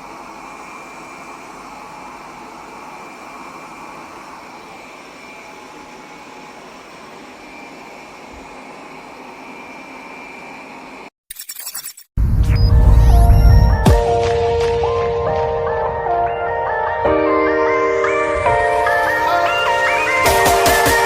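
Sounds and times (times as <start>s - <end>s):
robot vacuum whirring: 0.0s - 12.0s, 18.1s - 21.0s.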